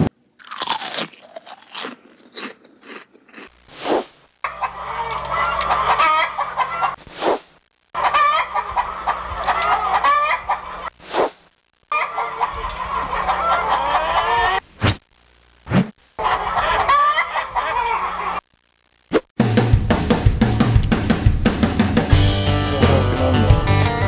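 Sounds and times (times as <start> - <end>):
chickens clucking: 4.4 - 7.0, 8.0 - 11.0, 11.9 - 14.6, 16.2 - 18.4
short swishes: 7.0 - 7.5, 11.0 - 11.4.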